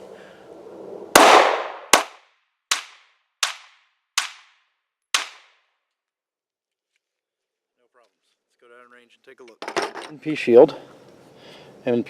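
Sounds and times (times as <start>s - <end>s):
pistol shots: 1.2s - 4.6s, 5.2s - 5.6s.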